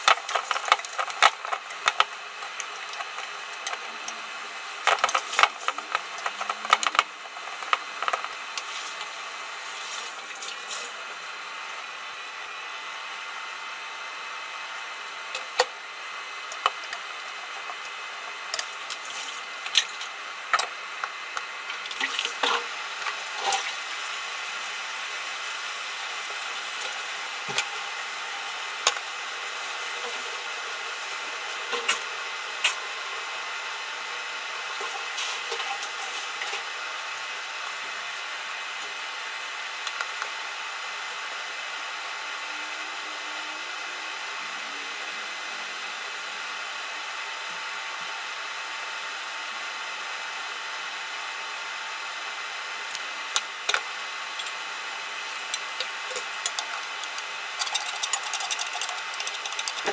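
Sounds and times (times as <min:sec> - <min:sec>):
kitchen utensils clinking: 0:55.3 - 0:59.9.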